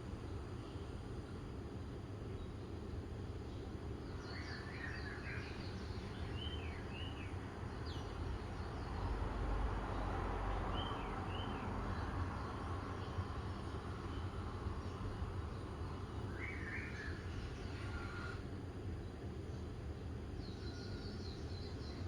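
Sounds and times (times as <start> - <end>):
birds chirping: 3.4 - 9.2, 9.9 - 18.4, 19.0 - 22.0.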